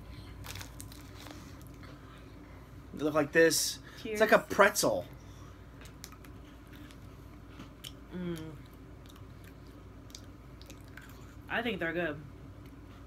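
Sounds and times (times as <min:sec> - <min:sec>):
crunching and chewing biscuit sticks: 0:00.2 - 0:02.2, 0:05.8 - 0:11.4
person humming: 0:08.1 - 0:08.6.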